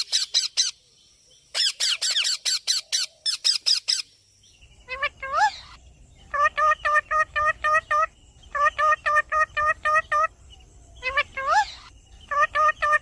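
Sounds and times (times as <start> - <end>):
parrot squawking: 4.9 - 10.3, 11.0 - 13.0.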